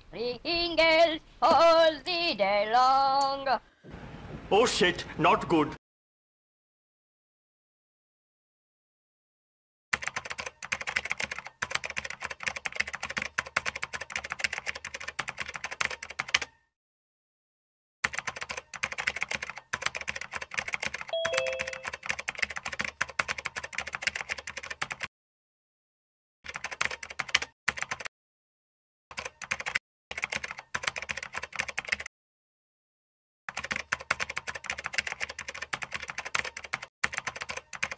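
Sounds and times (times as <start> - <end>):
rapid keyboard typing: 9.9 - 16.6, 18.0 - 25.1, 26.5 - 28.1, 29.1 - 32.1, 33.5 - 37.9
two-note falling chime: 21.2 - 21.9.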